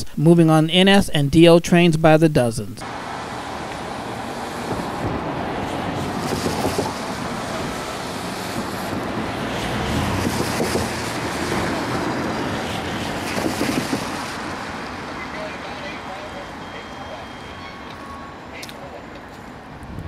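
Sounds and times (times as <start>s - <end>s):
freight train rolling on rails: 2.8s - 19.8s
wind noise on microphone: 4.6s - 14.4s, 19.7s - 20.0s.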